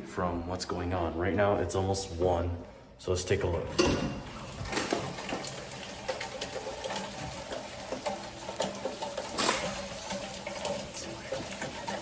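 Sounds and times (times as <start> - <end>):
drops splattering and dripping: 4.4 - 12.0.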